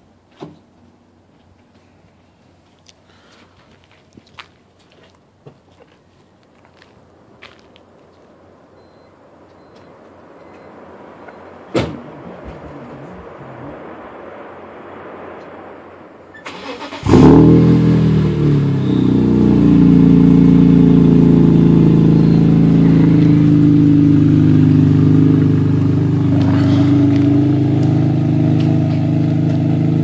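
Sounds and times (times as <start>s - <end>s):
car engine starting and idling: 16.3s - 30.0s.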